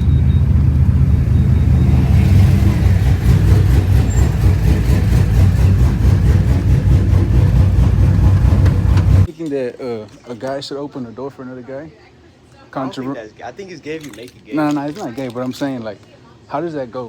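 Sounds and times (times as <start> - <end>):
truck engine rumbling: 0.0 - 9.3.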